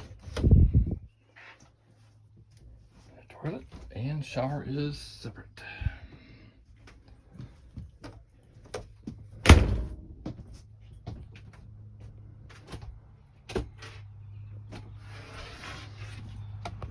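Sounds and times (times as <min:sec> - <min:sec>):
door clicks and knocks: 0:09.4 - 0:10.2
door banging: 0:09.4 - 0:10.4.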